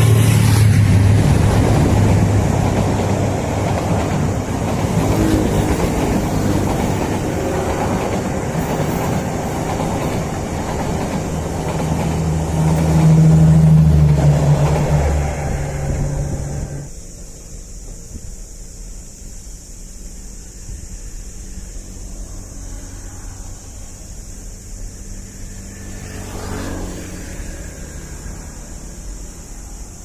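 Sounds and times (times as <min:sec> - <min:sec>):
low engine drone: 0:00.0 - 0:08.5, 0:10.4 - 0:18.3
train wheels rumbling on rails: 0:00.0 - 0:30.0.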